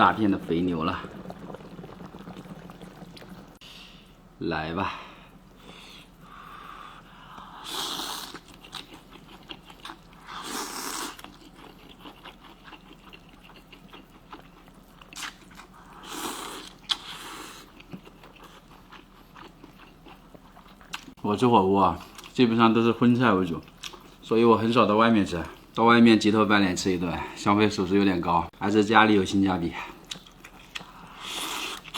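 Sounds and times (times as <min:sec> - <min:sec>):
person chewing food: 0:07.3 - 0:21.2, 0:23.5 - 0:24.2, 0:29.9 - 0:31.9.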